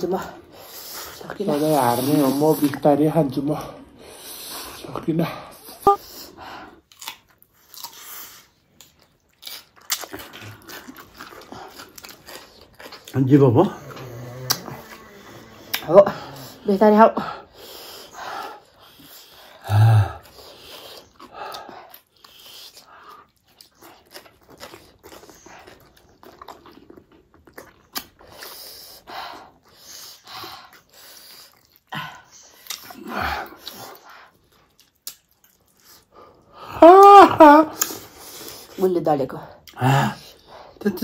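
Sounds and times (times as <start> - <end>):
chewing mouth sounds: 6.9 - 16.6, 20.2 - 29.0, 30.7 - 36.2
slurping noodles: 10.4 - 16.6.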